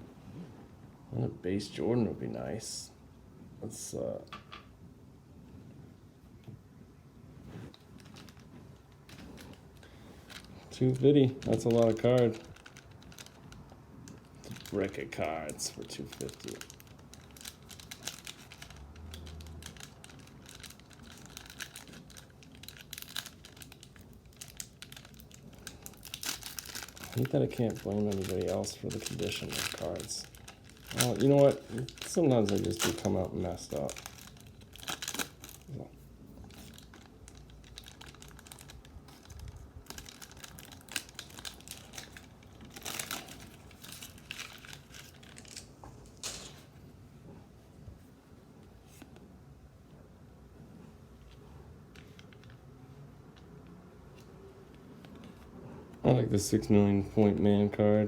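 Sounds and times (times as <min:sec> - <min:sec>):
foil wrappers crinkling: 0:07.7 - 0:46.8.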